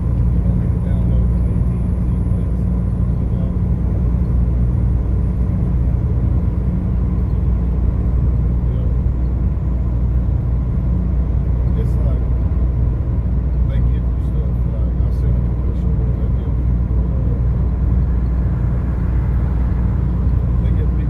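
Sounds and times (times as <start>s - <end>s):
car engine and tyre noise: 0.0s - 21.0s.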